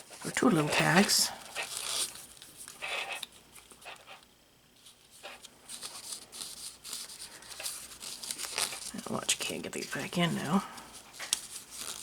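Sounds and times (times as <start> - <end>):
paper rustling: 4.8 - 12.0.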